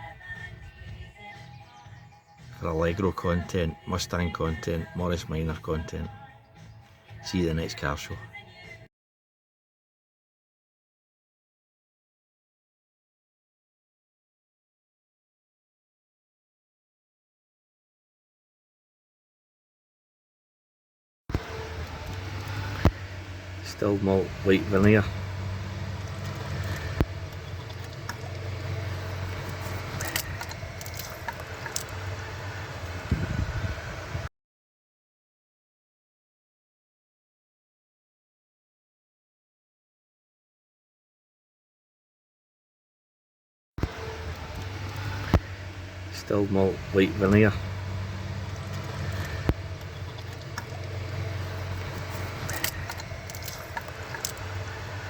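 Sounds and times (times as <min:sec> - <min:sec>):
car engine idling: 0:21.3 - 0:34.3, 0:43.8 - 0:55.0
sharp clicks: 0:24.6 - 0:32.2, 0:48.4 - 0:55.0.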